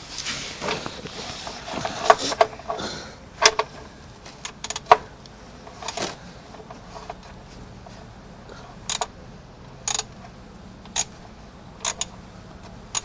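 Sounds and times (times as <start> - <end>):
spanner clinking on metal: 4.4 - 5.0, 8.9 - 9.1, 9.8 - 10.2, 11.8 - 12.2.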